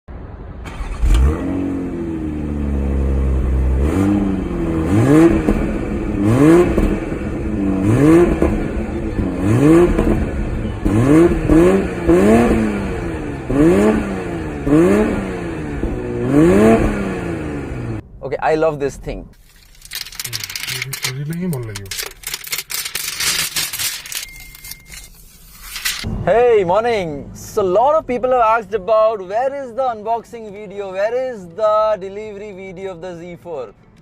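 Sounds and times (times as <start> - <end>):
car engine revving and idling: 0.4 - 18.0.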